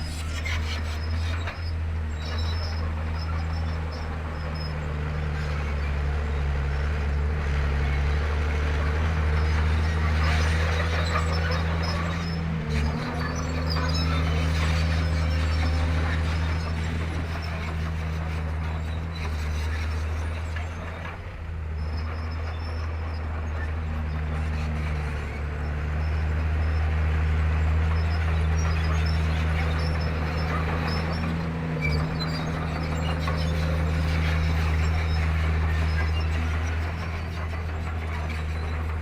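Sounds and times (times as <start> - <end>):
faint high squeaks: 0.0 - 6.0, 27.8 - 39.0
bulldozer diesel engine droning: 0.0 - 39.0.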